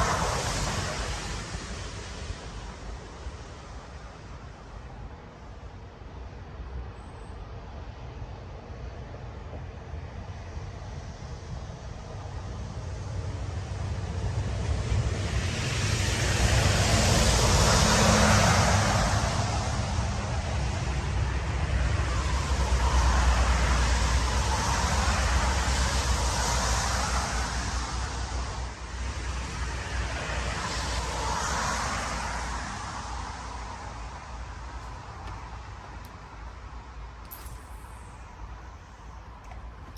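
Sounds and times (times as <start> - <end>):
wind gusting over microphone: 0.0 - 5.3, 9.6 - 39.9.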